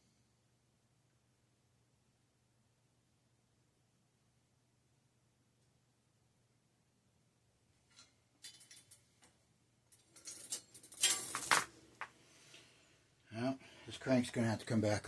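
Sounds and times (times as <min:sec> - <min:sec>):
metal tools clinking: 0:07.9 - 0:09.0, 0:10.0 - 0:11.7.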